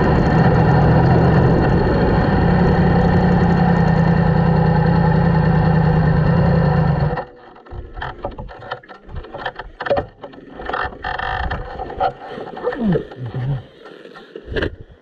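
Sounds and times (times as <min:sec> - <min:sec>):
wind on microphone: 0:00.0 - 0:04.2
motorcycle engine idling: 0:00.0 - 0:07.2.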